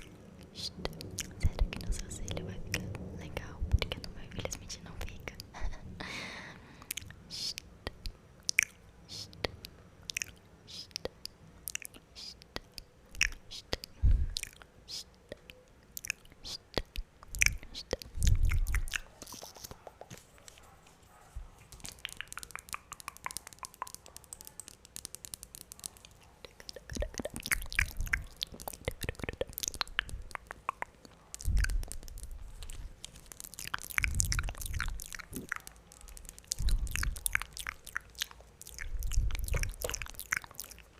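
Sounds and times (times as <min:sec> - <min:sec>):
tongue clicks and lip smacks: 0:00.0 - 0:05.6, 0:06.8 - 0:20.7, 0:21.6 - 0:40.9.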